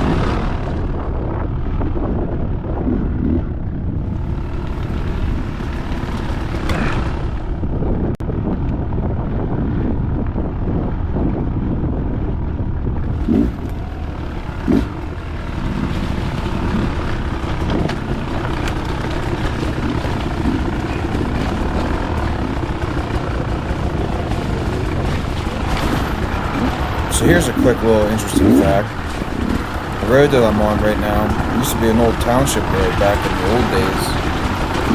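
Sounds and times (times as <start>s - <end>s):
dirt bike engine running: 0.0s - 34.9s.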